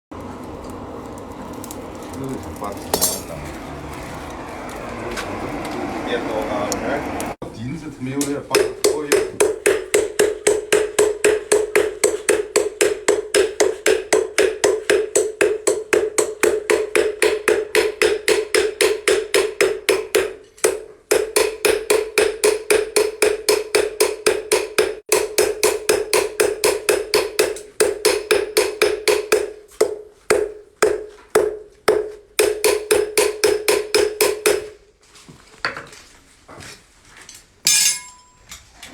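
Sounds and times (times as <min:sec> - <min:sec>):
hand tool strokes on ringing metal: 0:37.6 - 0:38.5.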